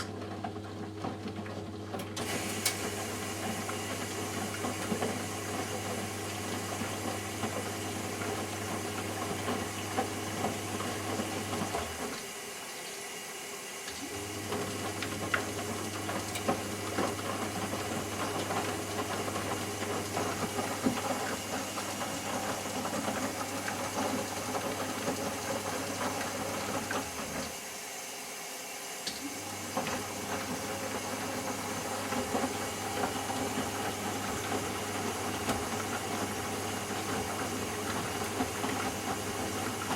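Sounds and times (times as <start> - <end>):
washing machine motor hum: 0.0 - 39.9
water and laundry sloshing: 0.2 - 27.8, 29.0 - 39.9.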